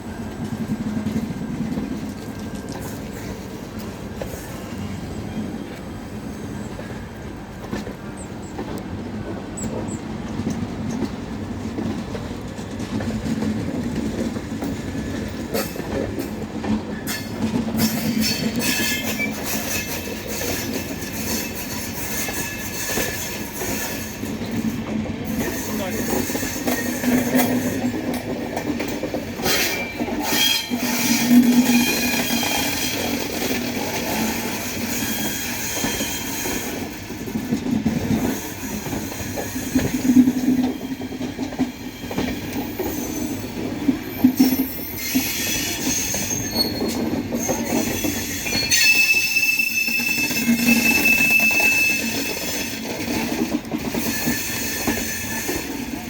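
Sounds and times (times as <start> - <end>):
train wheels squealing: 0.0 - 8.6, 14.6 - 28.7, 29.3 - 56.0
train rumbling on rails: 0.0 - 56.0
clacks from rail joints: 0.1 - 4.9, 6.6 - 56.0.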